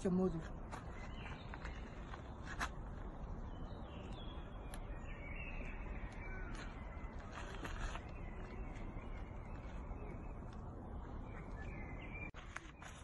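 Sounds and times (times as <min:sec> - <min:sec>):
birds calling and chirping: 0:00.0 - 0:13.0
steady low outdoor rumble: 0:00.0 - 0:13.0.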